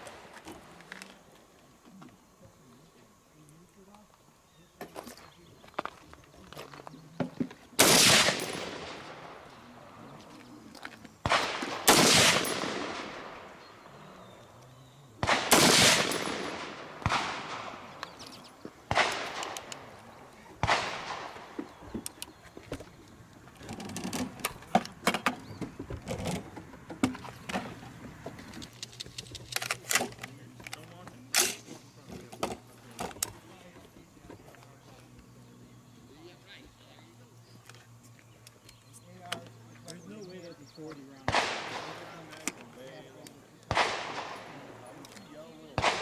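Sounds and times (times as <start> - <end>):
handgun shots with echo: 7.8 - 9.5, 11.2 - 13.6, 15.2 - 18.2, 18.9 - 19.9, 20.6 - 21.6, 41.3 - 42.3, 43.7 - 44.8, 45.7 - 46.0.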